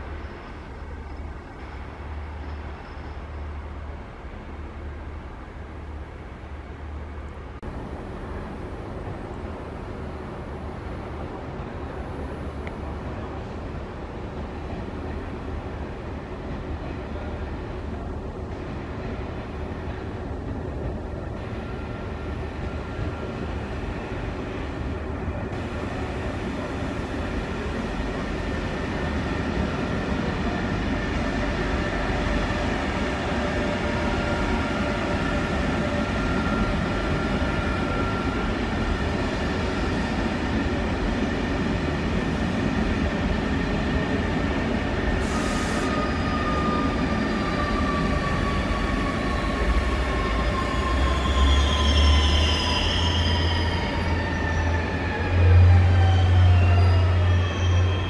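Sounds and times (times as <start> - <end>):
train wheels rumbling on rails: 11.0 - 58.0
high wheel squeal: 45.3 - 55.3, 56.0 - 58.0.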